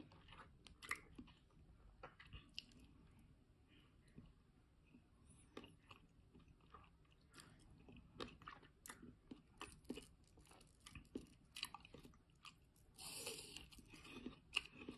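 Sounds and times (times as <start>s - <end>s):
crisp chewing crunches: 5.6s - 14.9s.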